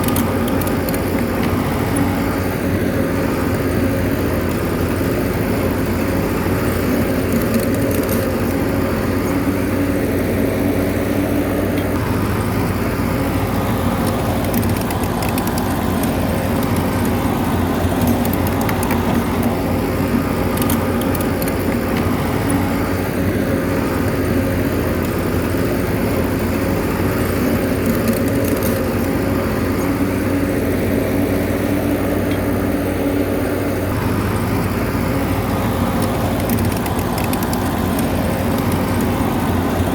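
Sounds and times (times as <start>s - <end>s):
bulldozer diesel engine running: 0.0s - 39.9s
faint clicks: 35.8s - 39.3s.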